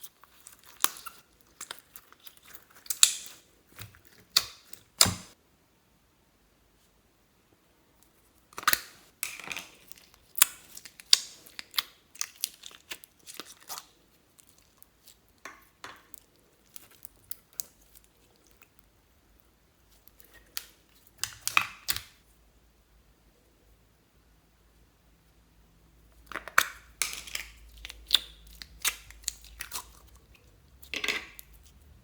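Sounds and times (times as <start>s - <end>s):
slime crackling and popping: 0.2s - 5.4s, 8.6s - 18.8s, 26.2s - 31.6s.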